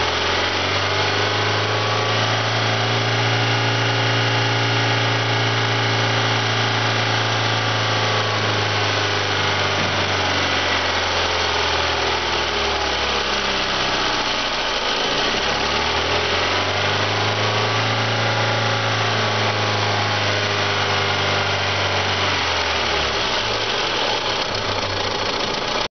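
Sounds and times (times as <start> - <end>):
car engine idling: 0.0 - 17.7, 22.4 - 25.9.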